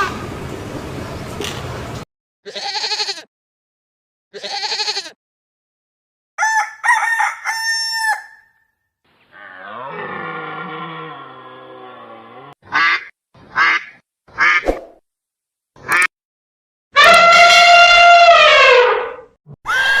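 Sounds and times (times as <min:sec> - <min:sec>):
rooster crowing: 0:06.4 - 0:08.6
harsh animal calls: 0:09.3 - 0:13.8, 0:17.0 - 0:20.0.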